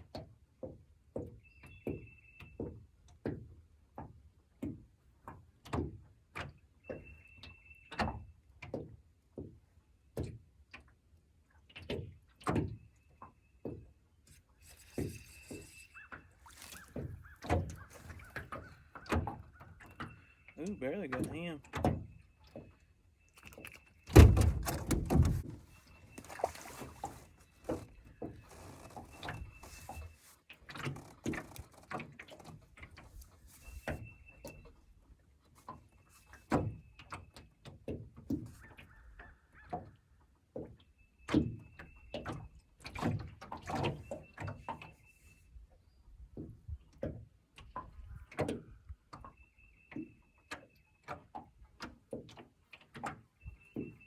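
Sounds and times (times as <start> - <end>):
fishing gear knocks and clicks: 14.3 - 20.1, 23.4 - 34.6.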